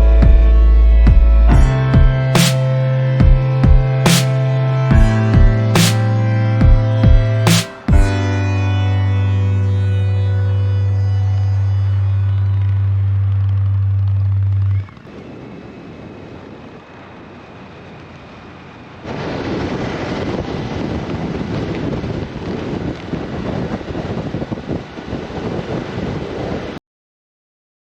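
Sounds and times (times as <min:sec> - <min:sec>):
road and engine noise: 0:11.3 - 0:23.3
wind buffeting microphone: 0:13.2 - 0:26.8.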